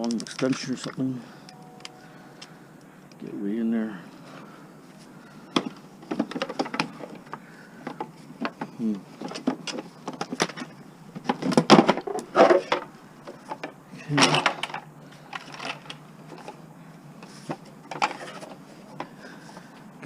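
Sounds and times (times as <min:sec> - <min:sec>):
tools and metal parts clinking: 0:05.4 - 0:16.6, 0:17.8 - 0:19.0.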